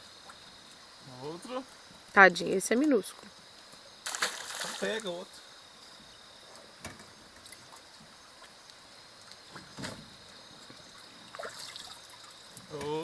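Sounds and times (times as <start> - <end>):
high-pitched insect drone: 0.0 - 7.4.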